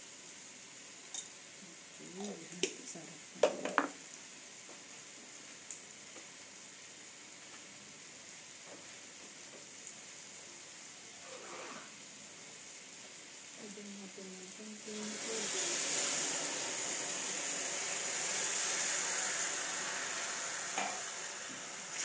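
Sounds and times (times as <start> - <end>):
vegetables sizzling in a wok: 0.0 - 22.0.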